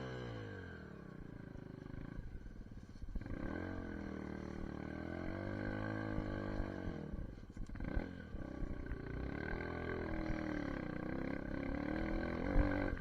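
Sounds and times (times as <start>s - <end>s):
motorbike engine revving: 3.2s - 13.0s.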